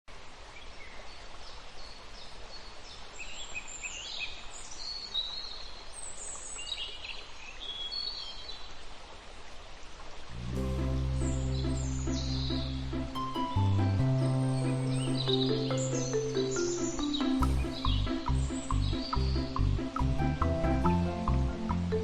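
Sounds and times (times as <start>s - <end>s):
outdoor background hiss: 0.1s - 22.0s
small birds chirping: 10.7s - 22.0s.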